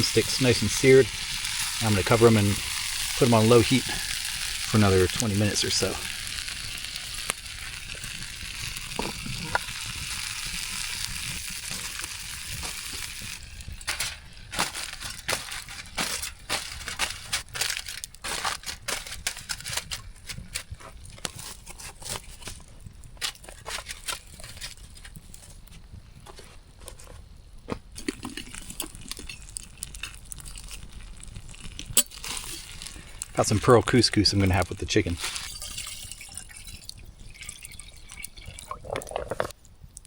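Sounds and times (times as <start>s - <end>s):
meat sizzling in a pan: 0.0s - 21.7s, 28.0s - 38.6s
irregular crackles and crunches: 0.0s - 40.0s.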